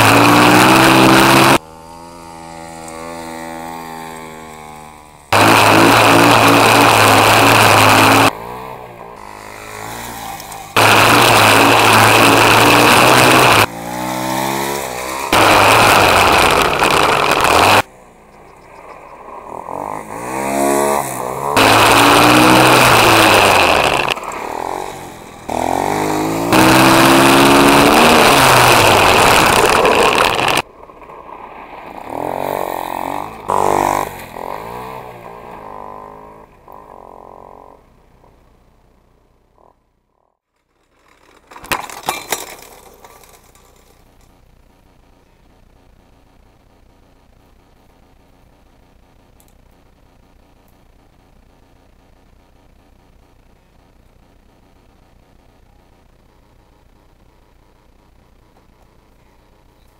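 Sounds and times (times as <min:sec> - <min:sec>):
pit bike engines revving: 0:00.0 - 0:37.9.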